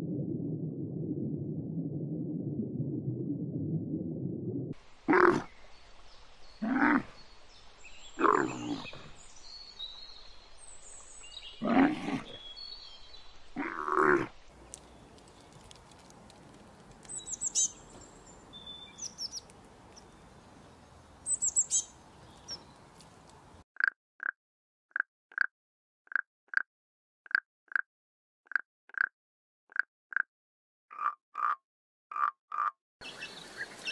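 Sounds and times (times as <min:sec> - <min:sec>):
small birds chirping: 0:04.9 - 0:23.6, 0:33.0 - 0:33.9
camels calling: 0:05.1 - 0:05.5, 0:08.2 - 0:09.2.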